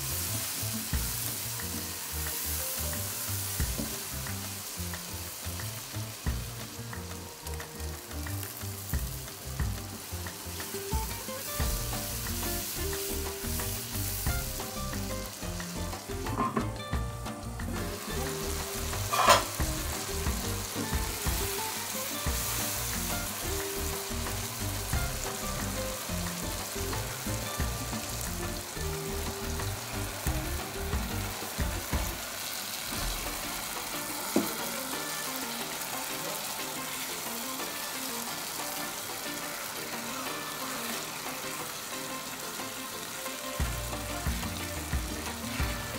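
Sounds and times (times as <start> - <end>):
vegetables sizzling in hot oil: 0.0 - 45.9
spatula stirring: 19.0 - 19.6.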